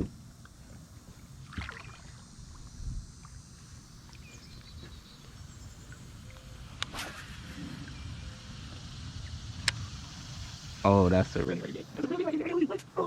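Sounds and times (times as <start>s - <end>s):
wind rumble on microphone: 2.2s - 3.4s.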